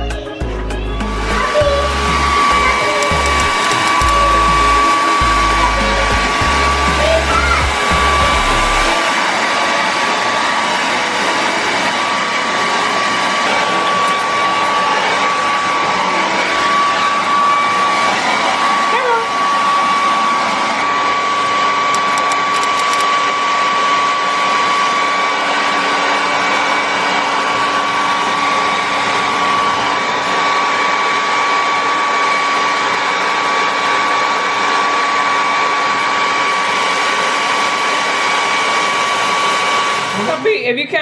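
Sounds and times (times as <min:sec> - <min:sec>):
hair dryer blowing: 0:01.1 - 0:12.4.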